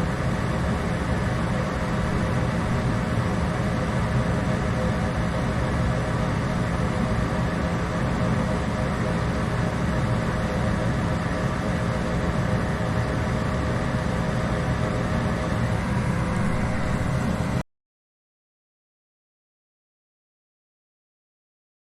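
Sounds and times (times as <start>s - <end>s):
furnace blower hum and rushing air: 13.0s - 17.6s.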